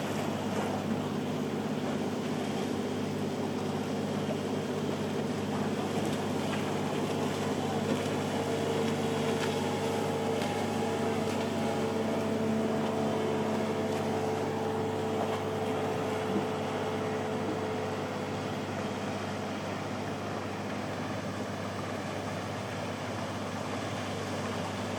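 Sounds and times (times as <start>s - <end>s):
boat engines running: 0.0s - 24.9s.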